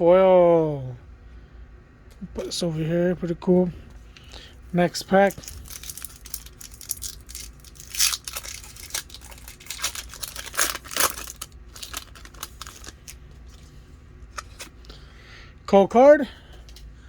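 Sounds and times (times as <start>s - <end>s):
foil wrapper crinkling and tearing: 5.0s - 14.7s.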